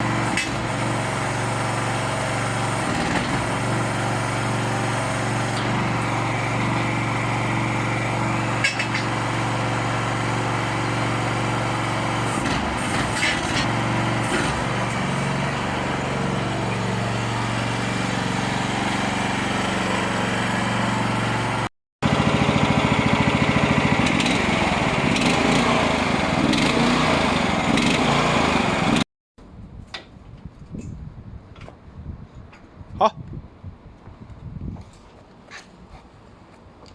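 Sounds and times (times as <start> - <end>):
small backhoe engine running: 0.0 - 29.0.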